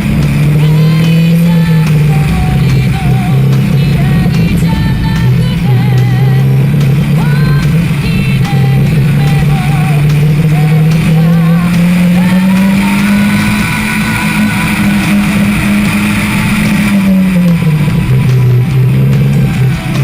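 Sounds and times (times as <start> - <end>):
car engine accelerating: 0.0 - 20.0
rock music: 0.0 - 20.0.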